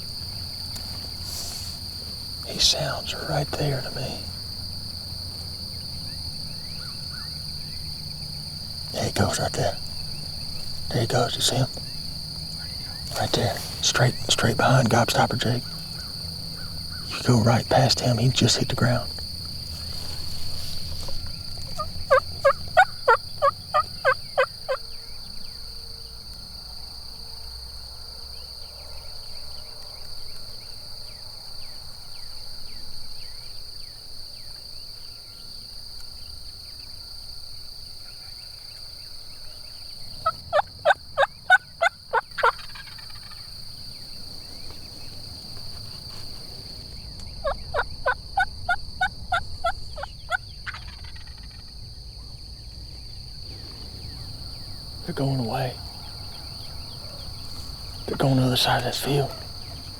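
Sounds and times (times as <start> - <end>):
high insect drone: 0.0 - 59.9
wild turkeys calling: 5.3 - 25.1, 40.0 - 51.7, 53.4 - 59.9.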